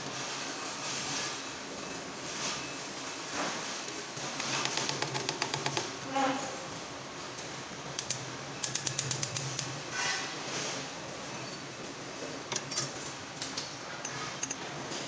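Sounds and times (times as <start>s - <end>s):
sharp mechanical clicks: 8.0s - 9.7s.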